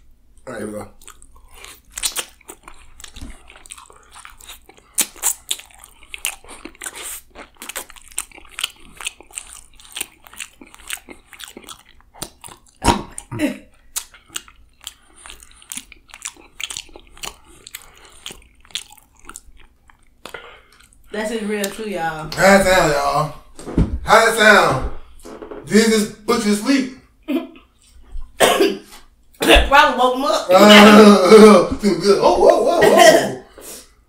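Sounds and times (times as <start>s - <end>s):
chewing: 0.3s - 21.8s
crunchy bites: 1.0s - 13.3s
wet mouth smacks: 1.9s - 2.4s.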